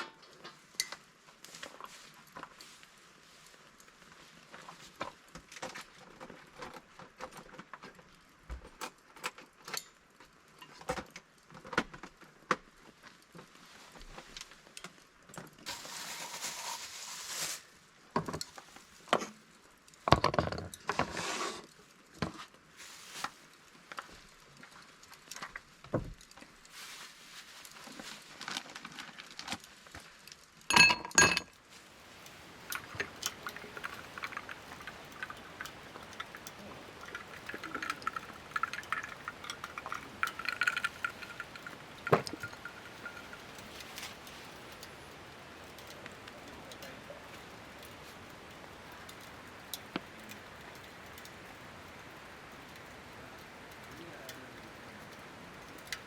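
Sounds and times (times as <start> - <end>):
short hiss: 15.7 - 17.8
metal camping gear clinking: 30.7 - 48.0.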